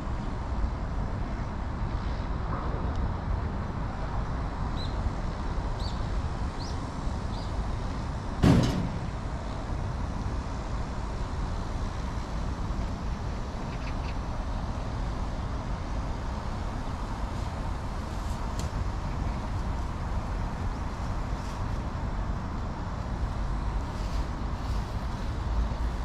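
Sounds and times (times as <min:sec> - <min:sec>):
low outdoor rumble: 0:00.0 - 0:26.0
loud sharp bang: 0:08.4 - 0:09.1.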